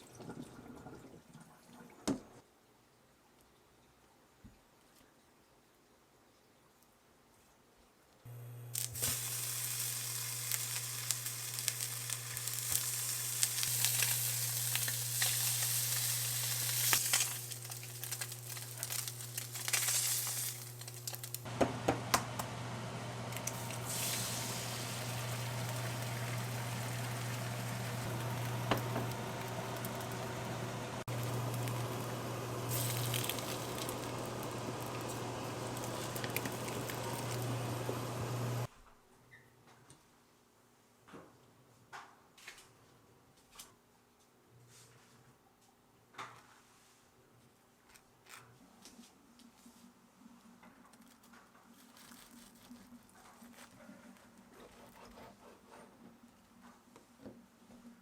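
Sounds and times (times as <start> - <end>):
food sizzling in a pan: 8.3 - 21.5, 23.1 - 38.7
low hum: 20.3 - 38.7.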